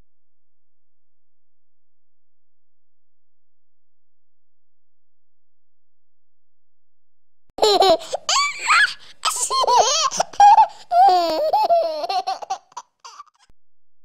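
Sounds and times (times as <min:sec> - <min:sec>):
small child laughing: 0:07.6 - 0:13.4.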